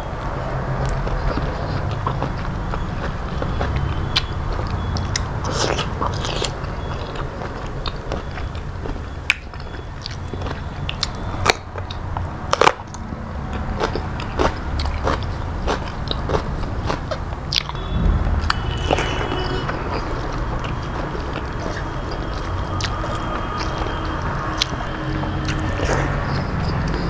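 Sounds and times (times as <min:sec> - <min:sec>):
person chewing crunchy food: 0:00.8 - 0:19.1, 0:19.9 - 0:27.0
low hum: 0:17.5 - 0:27.0.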